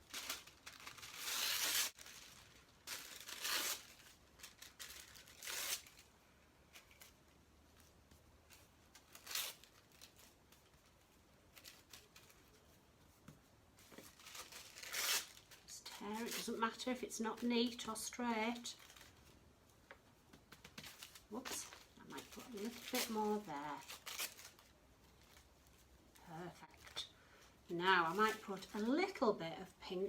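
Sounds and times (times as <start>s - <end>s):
tissue paper tearing: 0.0s - 6.1s, 8.5s - 10.6s, 14.0s - 16.9s, 21.0s - 25.5s.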